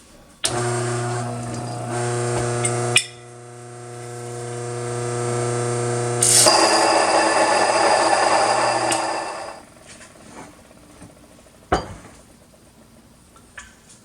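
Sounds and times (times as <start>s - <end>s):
grain mill motor hum: 0.4s - 11.6s
loud rough grinding noise: 0.5s - 9.8s.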